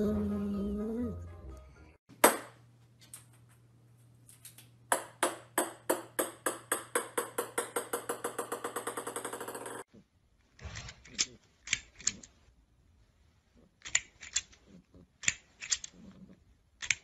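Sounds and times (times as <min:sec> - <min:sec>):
ping-pong ball bouncing on wood floor: 0:02.2 - 0:02.6, 0:04.9 - 0:09.8.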